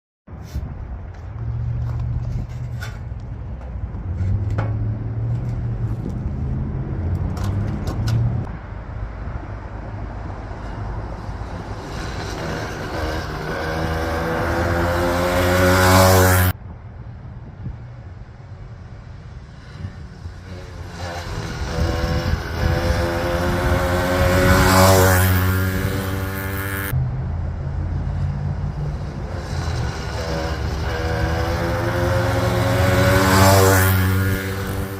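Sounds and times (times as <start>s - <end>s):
two-stroke engine buzzing past: 10.2s - 16.6s, 19.0s - 27.2s, 28.0s - 34.9s.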